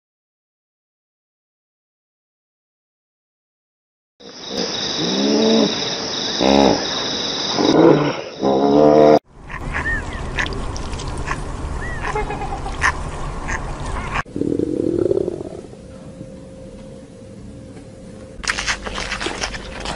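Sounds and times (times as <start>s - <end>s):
steady high whine: 13.0s - 19.9s.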